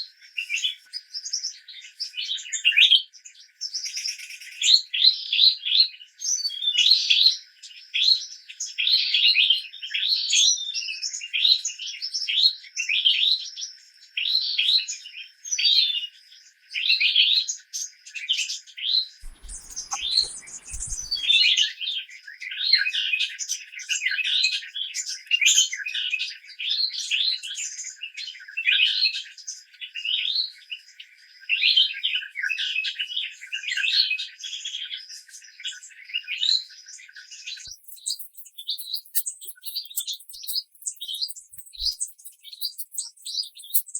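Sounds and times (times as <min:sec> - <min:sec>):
birds chirping: 0:19.2 - 0:21.5, 0:37.7 - 0:43.9
thin steady high tone: 0:19.2 - 0:21.5, 0:37.7 - 0:43.9.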